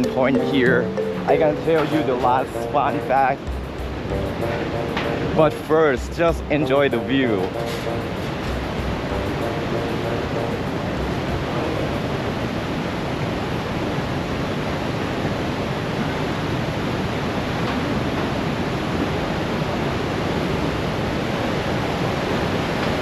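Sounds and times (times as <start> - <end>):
rush of huge waterfall: 10.6 - 23.0.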